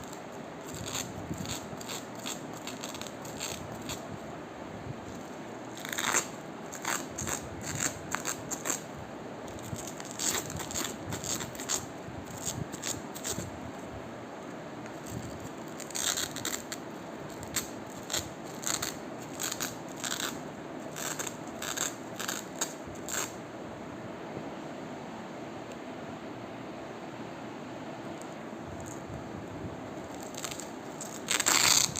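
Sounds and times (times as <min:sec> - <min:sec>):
crunchy material crackling: 0:00.0 - 0:04.3, 0:04.9 - 0:23.4, 0:29.8 - 0:31.9
faint background hiss: 0:00.0 - 0:31.9.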